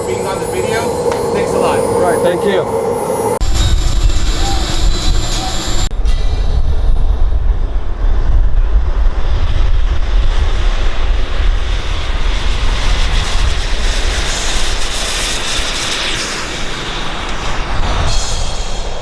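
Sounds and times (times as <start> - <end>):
model jet engine noise: 0.0 - 6.0, 9.1 - 19.0
faint high whine: 0.0 - 9.3.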